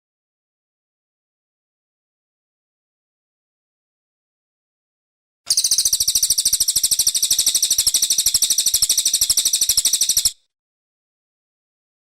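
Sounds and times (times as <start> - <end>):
songbird trilling: 5.5 - 10.4.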